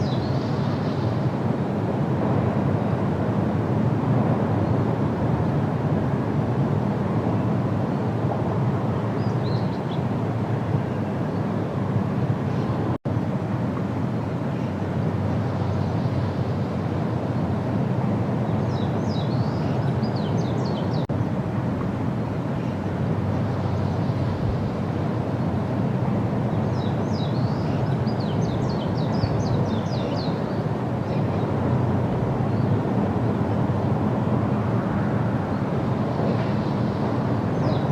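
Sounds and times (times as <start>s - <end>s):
songbird singing: 0.0s - 1.3s, 9.1s - 10.2s, 14.5s - 17.6s, 18.4s - 21.4s, 22.2s - 25.6s, 26.4s - 31.7s, 32.4s - 33.8s, 35.5s - 37.9s
low outdoor rumble: 0.0s - 37.9s.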